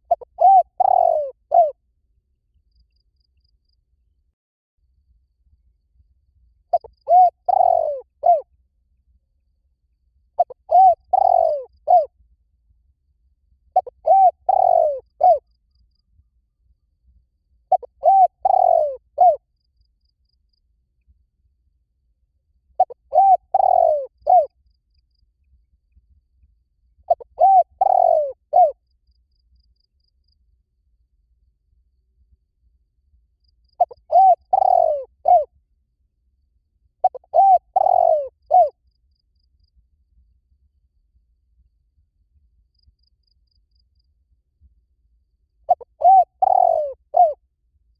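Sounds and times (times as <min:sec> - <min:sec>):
dove cooing: 0:00.0 - 0:01.8, 0:06.7 - 0:08.4, 0:10.4 - 0:12.1, 0:13.8 - 0:15.4, 0:17.7 - 0:19.4, 0:22.8 - 0:24.5, 0:27.1 - 0:28.8, 0:33.8 - 0:35.5, 0:37.0 - 0:38.8, 0:45.7 - 0:47.4.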